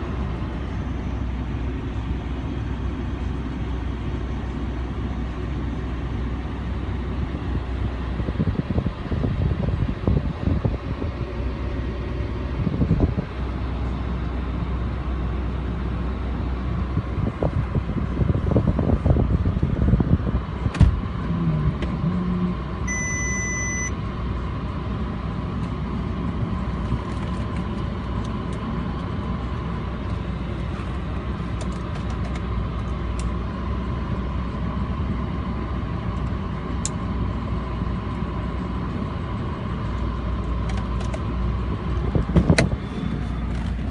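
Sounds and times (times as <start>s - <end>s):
car engine rumbling: 0.0s - 43.9s
short high beep: 22.9s - 24.0s.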